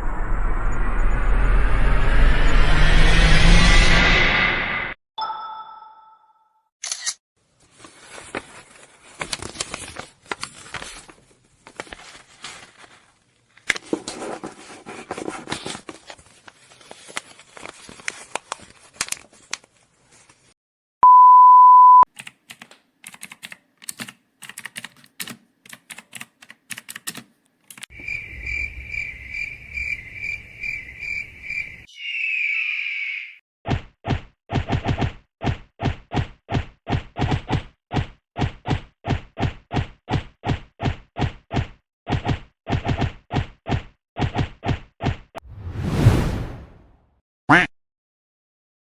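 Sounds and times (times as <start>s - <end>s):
steady beep: 21.0s - 22.0s.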